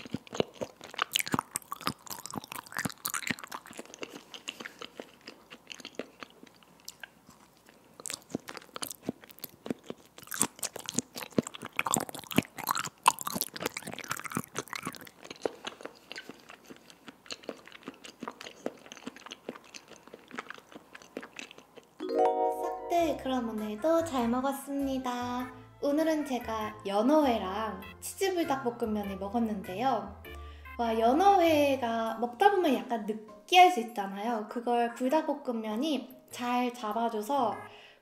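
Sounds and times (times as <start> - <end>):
chewing with wet mouth sounds: 0.0 - 22.0.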